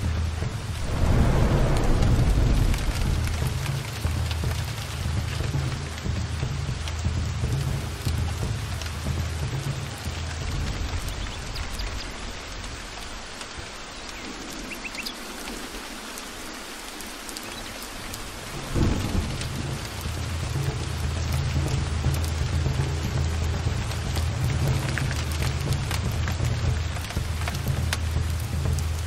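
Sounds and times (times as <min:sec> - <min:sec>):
heavy rain: 0:00.0 - 0:29.0
rolling thunder: 0:00.3 - 0:06.1, 0:18.2 - 0:22.1
thunderclap: 0:00.3 - 0:06.1, 0:18.3 - 0:22.2.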